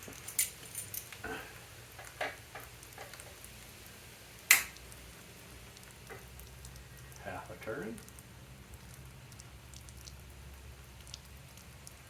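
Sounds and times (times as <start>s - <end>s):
small clicks and taps: 2.0s - 3.5s
sharp loud click: 4.5s - 4.8s.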